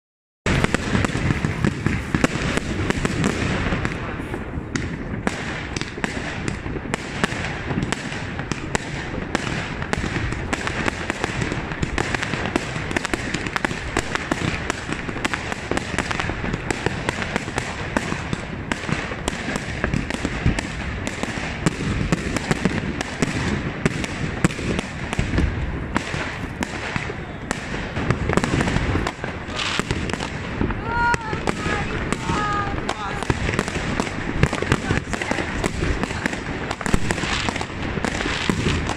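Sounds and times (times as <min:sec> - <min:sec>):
fireworks bangs and crackles: 0:00.5 - 0:38.9.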